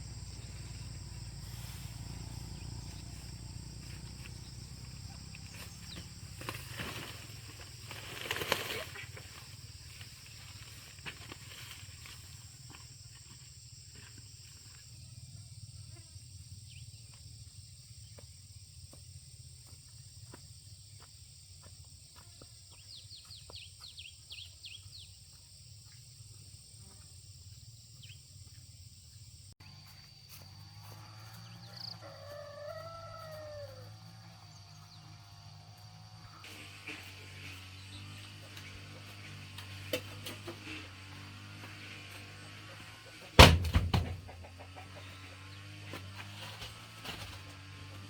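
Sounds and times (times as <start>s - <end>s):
high insect drone: 0.0s - 43.1s
chirps: 2.3s - 6.4s
rooster crowing: 30.8s - 34.4s.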